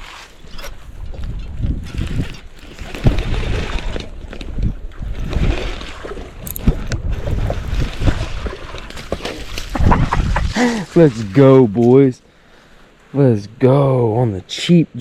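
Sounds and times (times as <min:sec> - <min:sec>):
water splashing: 0:00.0 - 0:12.0
wind buffeting microphone: 0:00.7 - 0:11.5.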